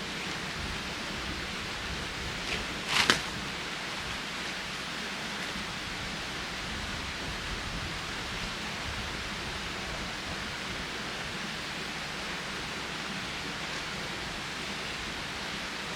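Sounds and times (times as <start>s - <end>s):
steady rushing outdoor noise: 0.0s - 15.9s
brief rustle: 2.4s - 3.4s.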